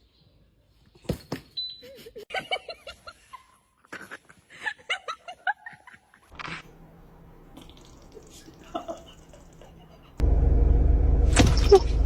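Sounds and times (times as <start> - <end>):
person laughing: 1.8 - 6.3, 8.1 - 10.2
low hum: 6.4 - 12.0.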